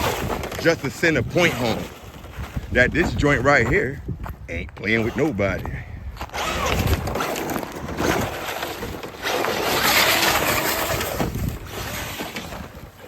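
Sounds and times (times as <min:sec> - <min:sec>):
tyre and wind noise: 0:00.0 - 0:13.0
rc truck electric motor whining: 0:06.3 - 0:13.0.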